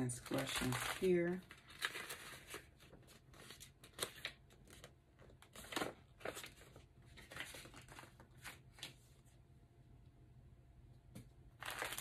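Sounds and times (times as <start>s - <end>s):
faint paper rustles: 0.0s - 9.4s.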